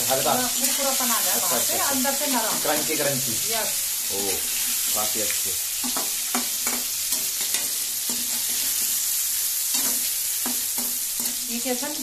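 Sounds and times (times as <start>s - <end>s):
food sizzling in hot oil: 0.0s - 12.0s
spoon knocking against pan: 5.8s - 8.3s.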